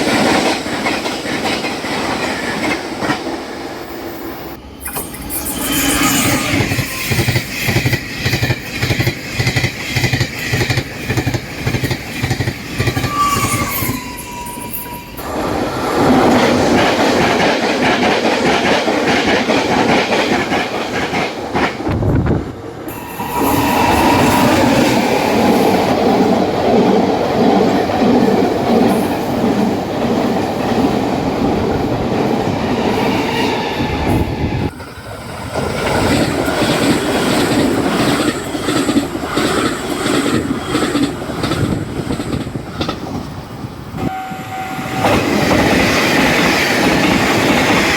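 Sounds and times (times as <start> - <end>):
trains passing at high speed: 0.0 - 47.9.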